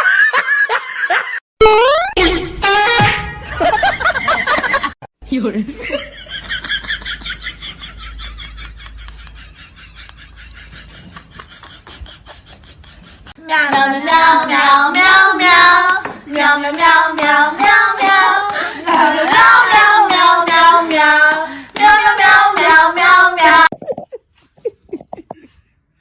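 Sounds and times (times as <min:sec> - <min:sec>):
high voice singing unaccompanied: 0:13.4 - 0:23.8.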